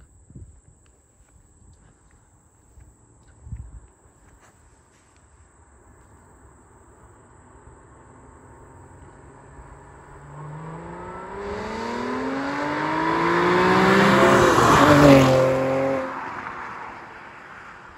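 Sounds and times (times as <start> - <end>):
car engine accelerating past: 8.1 - 17.8.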